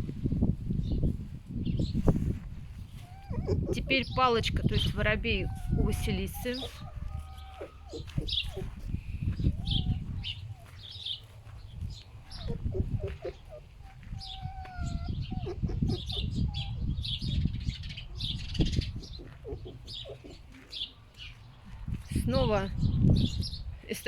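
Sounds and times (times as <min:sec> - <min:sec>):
small birds chirping: 0:02.8 - 0:24.0
foxes grunting: 0:03.0 - 0:11.2, 0:12.2 - 0:17.2, 0:18.1 - 0:21.0.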